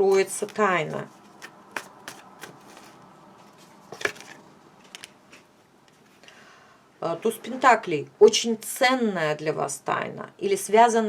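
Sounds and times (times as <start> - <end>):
cards sliding and brushing: 0.0 - 4.4.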